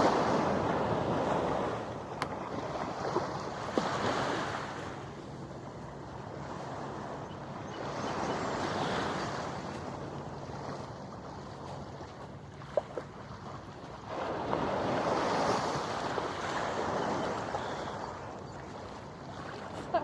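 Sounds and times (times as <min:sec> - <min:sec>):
waves washing onto shore: 0:00.0 - 0:05.5, 0:08.0 - 0:20.0.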